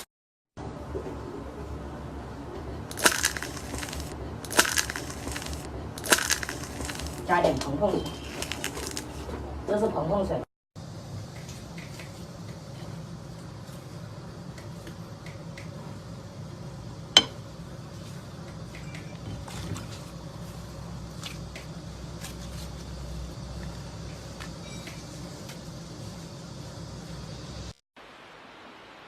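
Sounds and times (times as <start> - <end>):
slime clicking and squishing: 2.9 - 7.3.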